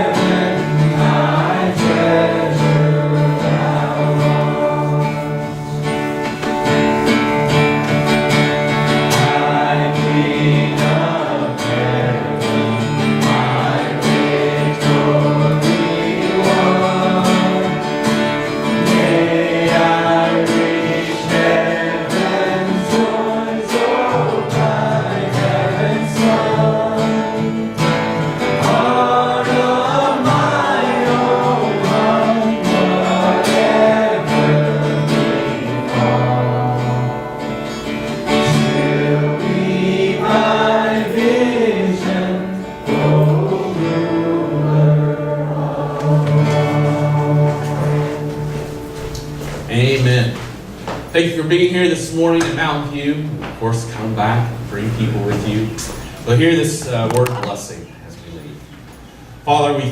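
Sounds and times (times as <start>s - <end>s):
person singing: 0.0s - 5.6s, 8.8s - 37.4s, 38.3s - 48.6s
strummed acoustic guitar: 0.0s - 57.8s.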